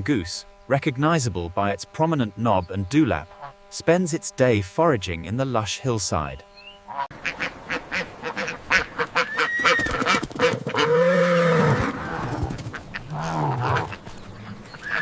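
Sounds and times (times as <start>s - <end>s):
geese honking: 2.6s - 3.9s, 6.2s - 15.0s.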